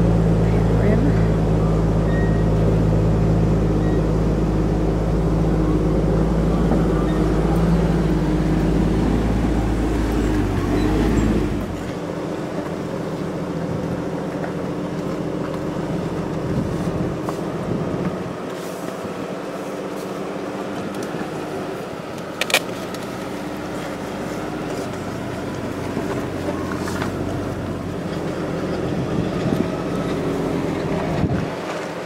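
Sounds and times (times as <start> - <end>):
car engine droning: 0.0 - 32.0.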